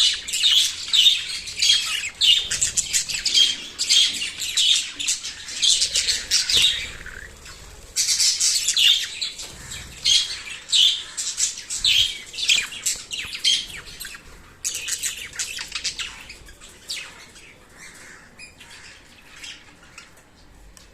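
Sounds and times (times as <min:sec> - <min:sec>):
small parrots chattering: 0:00.0 - 0:20.2.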